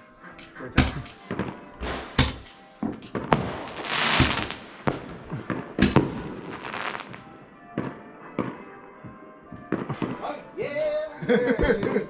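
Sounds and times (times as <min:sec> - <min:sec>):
fireworks bangs and pops: 0:00.4 - 0:07.3.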